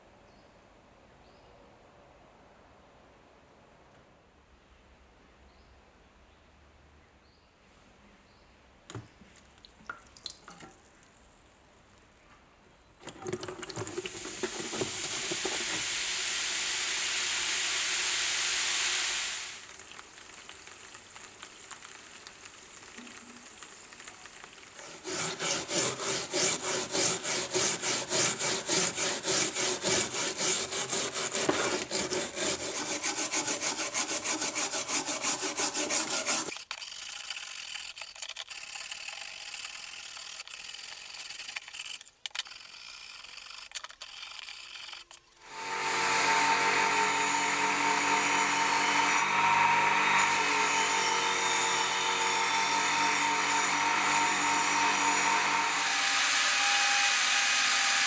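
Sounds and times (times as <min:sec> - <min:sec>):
water running from tap: 0:13.0 - 0:36.5
hand rubbing metal: 0:24.8 - 0:36.6.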